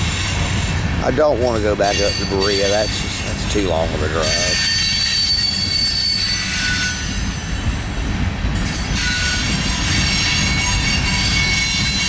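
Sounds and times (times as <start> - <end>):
train wheels rumbling on rail: 0.0 - 12.0
high-pitched wheel squeals: 4.1 - 7.6, 8.6 - 12.0.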